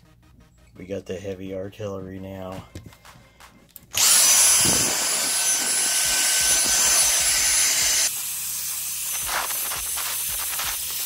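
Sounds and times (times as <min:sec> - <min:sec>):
vacuum cleaner whine: 0:04.0 - 0:08.2.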